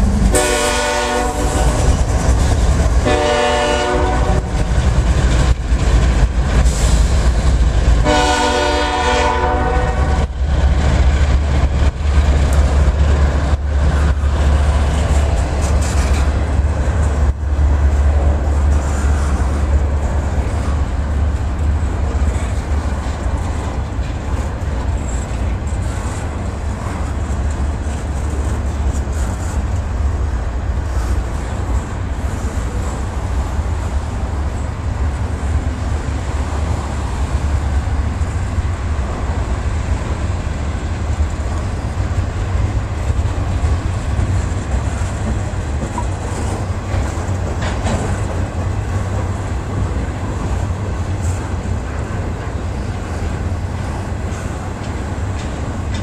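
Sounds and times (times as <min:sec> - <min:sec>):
diesel locomotive rumble: 0:00.0 - 0:56.0
train horn blasts: 0:00.3 - 0:01.9, 0:03.0 - 0:04.6, 0:08.0 - 0:10.3
clicks over rail joints: 0:43.1 - 0:49.4, 0:53.2 - 0:56.0.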